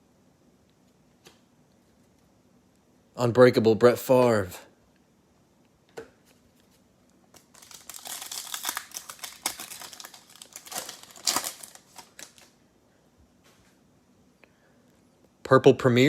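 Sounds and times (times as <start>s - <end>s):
plastic wrapper crinkling: 6.5s - 12.6s.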